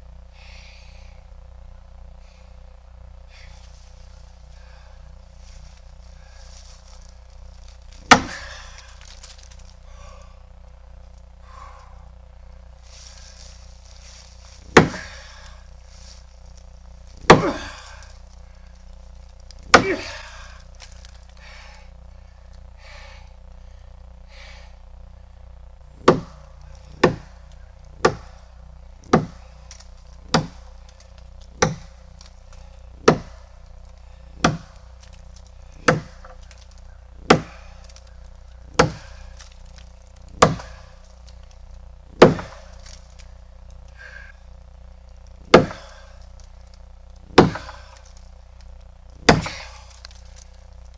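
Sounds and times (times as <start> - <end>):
axe chopping wood: 7.9 - 9.6, 13.0 - 15.5, 17.1 - 18.1, 19.6 - 21.1, 26.0 - 33.6, 34.3 - 43.3, 45.4 - 48.2, 49.2 - 50.6.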